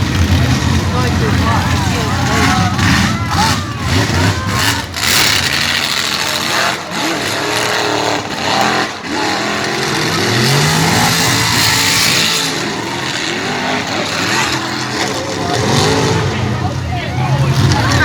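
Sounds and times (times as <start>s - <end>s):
truck engine revving: 0.0s - 18.0s.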